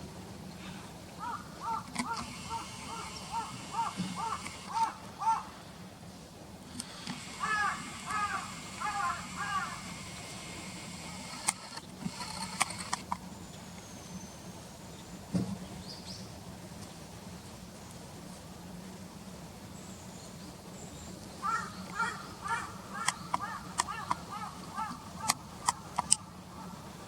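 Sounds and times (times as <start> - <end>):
crow cawing: 1.2 - 5.6, 7.2 - 10.0, 21.4 - 25.4
sharp high clicks: 1.8 - 5.0, 6.7 - 13.2.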